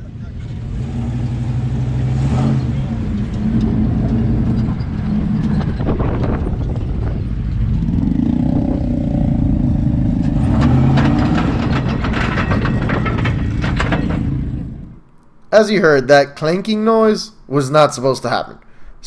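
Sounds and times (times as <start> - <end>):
truck engine running under load: 0.0 - 15.2
metallic clanking: 2.6 - 15.6.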